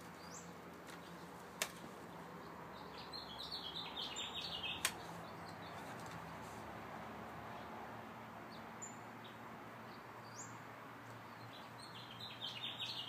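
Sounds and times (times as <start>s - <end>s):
small bird singing: 0.0s - 1.3s, 2.0s - 6.1s, 8.5s - 10.6s, 11.2s - 13.0s
sharp clicks: 4.8s - 5.0s.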